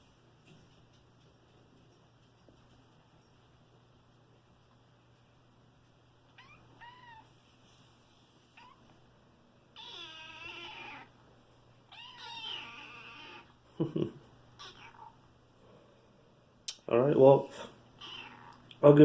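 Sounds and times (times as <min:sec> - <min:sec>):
kittens meowing: 0:06.3 - 0:07.3, 0:09.7 - 0:11.2, 0:11.9 - 0:13.6, 0:14.6 - 0:15.2, 0:18.0 - 0:18.6.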